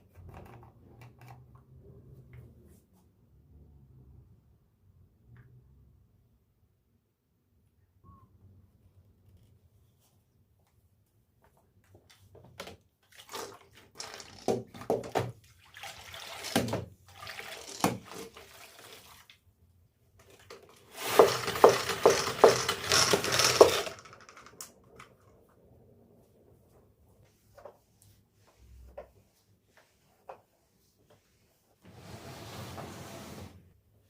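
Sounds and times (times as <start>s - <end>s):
water splashing in a sink: 13.0s - 19.5s.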